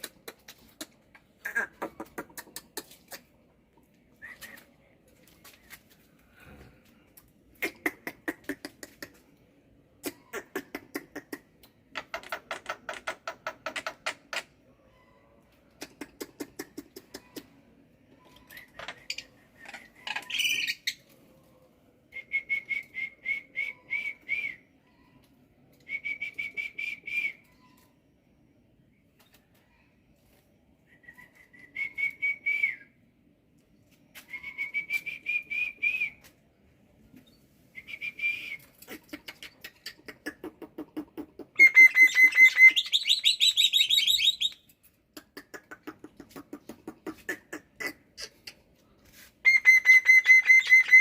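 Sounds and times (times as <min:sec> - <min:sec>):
myna bird singing: 0:18.2 - 0:21.1, 0:41.6 - 0:44.7.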